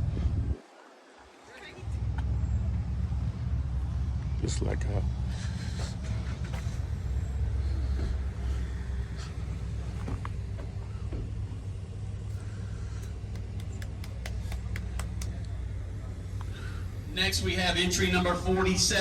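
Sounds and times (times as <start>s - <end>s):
car engine rumbling: 0.0s - 19.0s.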